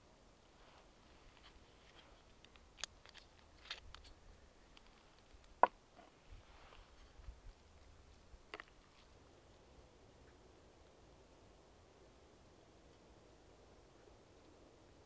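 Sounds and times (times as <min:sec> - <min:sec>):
light rustling: 0:00.6 - 0:09.6
small handling clicks: 0:01.3 - 0:05.6.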